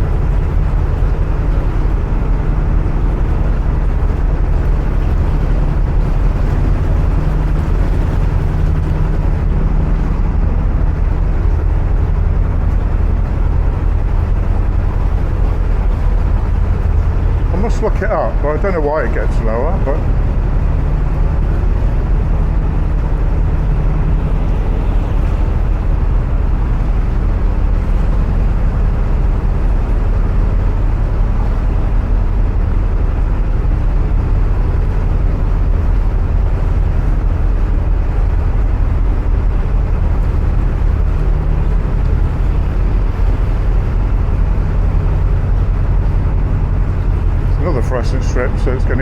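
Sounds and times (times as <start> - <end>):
diesel engine throbbing: 0.0 - 49.0.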